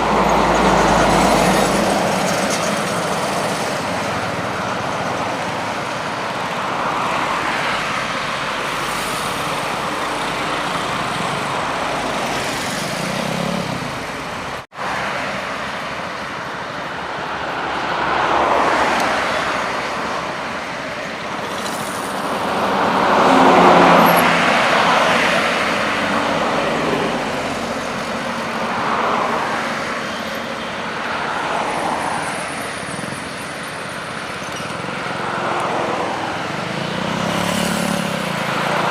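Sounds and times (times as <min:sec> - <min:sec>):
vehicles passing on highway: 0:00.0 - 0:38.9.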